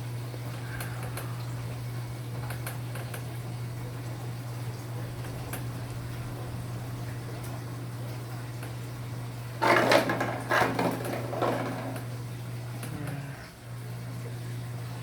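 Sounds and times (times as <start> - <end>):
washing machine motor humming: 0.0 - 15.0
sloshing and rattling: 9.3 - 12.2.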